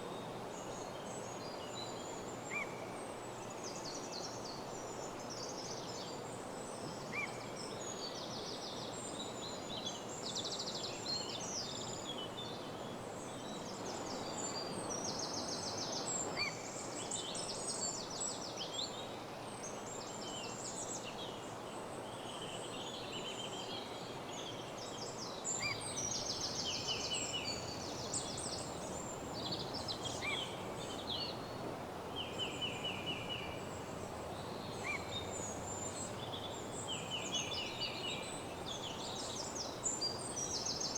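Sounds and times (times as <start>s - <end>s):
steady background hiss: 25.0s - 40.9s
songbirds singing: 25.5s - 40.9s.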